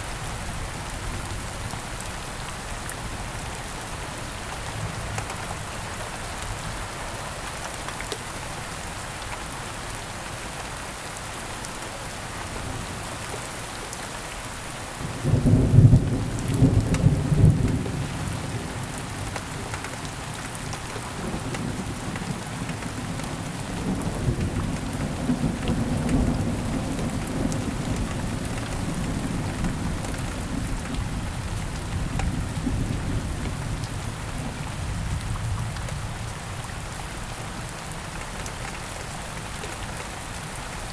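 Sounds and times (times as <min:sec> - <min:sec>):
thunder clap and rumble: 0:15.2 - 0:18.9, 0:21.1 - 0:36.4.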